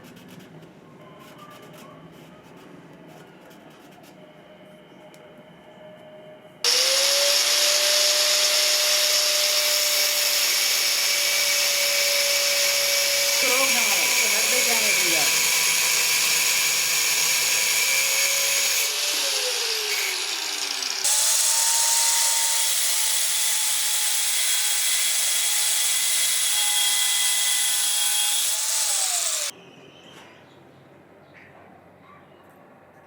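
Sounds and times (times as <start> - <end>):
power tool grinding metal: 6.7 - 29.5.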